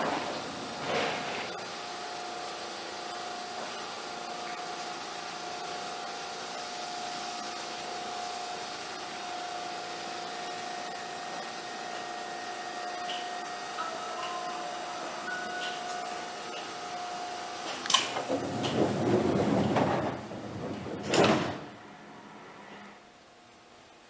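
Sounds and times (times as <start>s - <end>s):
train running noise: 0.0s - 2.5s, 10.5s - 23.0s
train mechanical hum: 0.0s - 24.0s.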